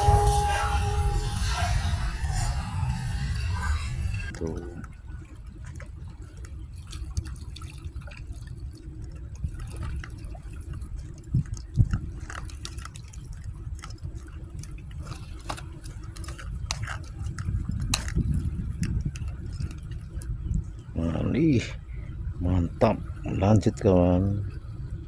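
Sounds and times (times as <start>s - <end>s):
low rumble: 0.0s - 4.6s
water dripping and sloshing: 4.3s - 25.0s.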